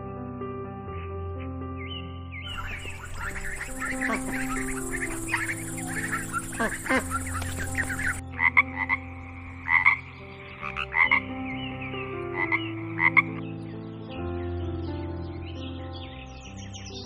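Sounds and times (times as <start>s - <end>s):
frog croaking: 2.5s - 11.4s, 12.3s - 13.4s.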